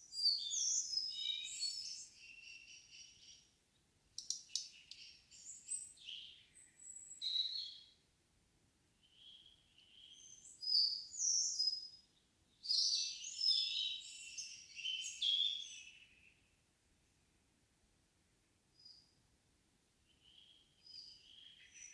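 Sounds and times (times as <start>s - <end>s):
songbirds singing: 0.0s - 8.0s, 9.0s - 16.6s, 20.0s - 21.9s.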